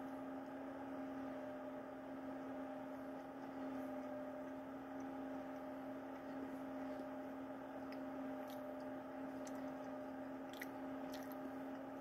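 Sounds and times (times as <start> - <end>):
low electrical hum: 0.0 - 12.0
soft mouth clicks chewing: 7.8 - 11.9.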